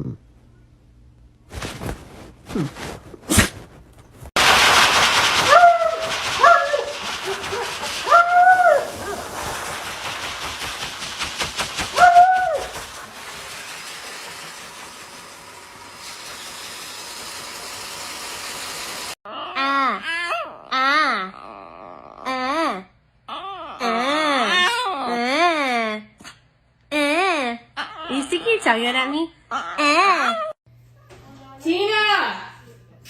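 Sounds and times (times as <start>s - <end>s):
loud steady hissing: 4.4s - 19.2s.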